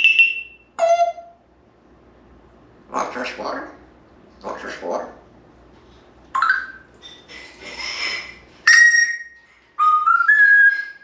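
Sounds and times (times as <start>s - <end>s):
parrot chirp: 0.0s - 1.4s, 6.4s - 6.9s, 8.7s - 11.0s
parrot whistling: 0.0s - 1.4s, 8.6s - 11.0s.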